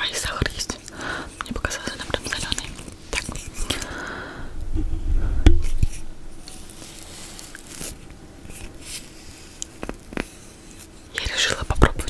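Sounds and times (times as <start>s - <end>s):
dull low thump: 4.5s - 6.3s.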